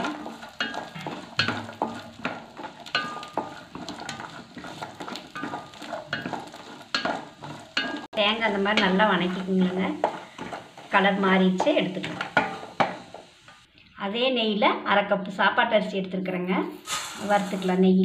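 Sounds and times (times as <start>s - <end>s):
coconut sizzling in a pan: 0.0s - 13.7s, 16.7s - 18.0s
wooden spatula scraping metal pan: 0.0s - 13.7s, 16.9s - 17.8s.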